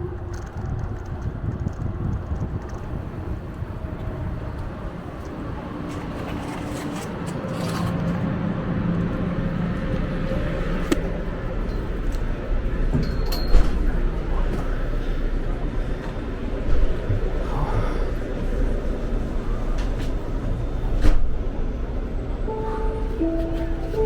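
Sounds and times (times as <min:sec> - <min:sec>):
road traffic: 0:00.0 - 0:24.0
vehicle engine hum: 0:00.0 - 0:24.0
low wavering rumble: 0:08.2 - 0:24.0.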